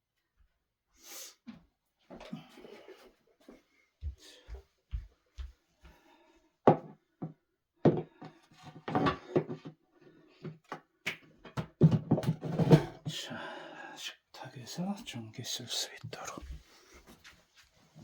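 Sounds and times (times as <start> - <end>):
objects knocking and clattering: 6.7 - 9.8, 10.4 - 13.1.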